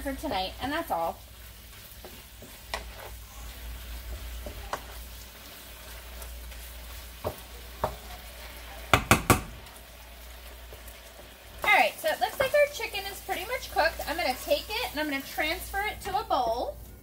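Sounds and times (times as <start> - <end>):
chicken sizzling in skillet: 0.0 - 17.0
wooden spatula scraping: 0.6 - 8.0
sharp knocks: 9.0 - 9.5.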